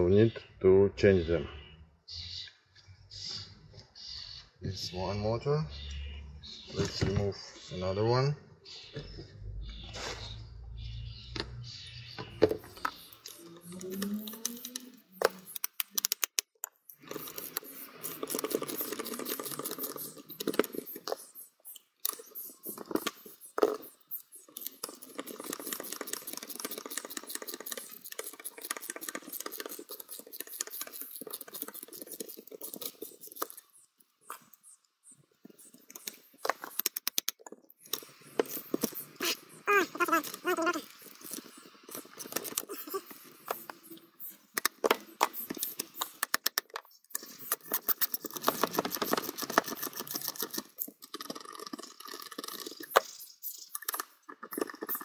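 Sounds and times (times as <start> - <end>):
metal parts and tools clicking: 12.4 - 33.7.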